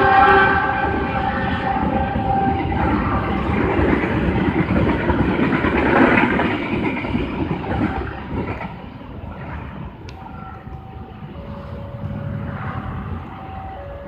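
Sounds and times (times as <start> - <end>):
locomotive horn: 0.0 - 4.5, 10.1 - 14.0
passing train rumbling: 0.0 - 14.0.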